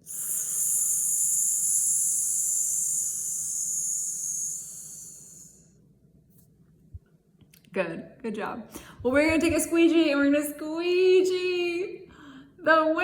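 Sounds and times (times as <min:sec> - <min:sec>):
woman hissing breath through teeth: 0:00.0 - 0:05.7.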